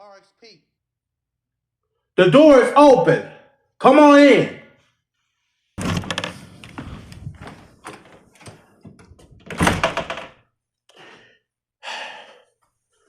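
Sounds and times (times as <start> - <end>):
door opening: 5.8 - 10.4
door shutting thud: 5.8 - 10.4.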